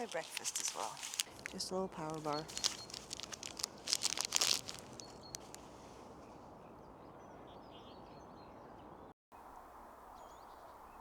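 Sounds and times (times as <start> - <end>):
wrapper crinkling: 0.0 - 5.7.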